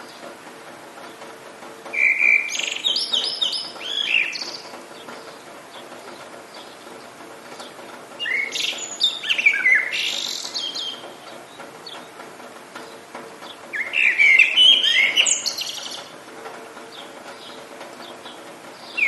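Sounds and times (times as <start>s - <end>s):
light rain hiss: 0.0s - 19.0s
songbird warbling: 1.9s - 5.3s, 8.2s - 11.1s, 13.7s - 16.1s.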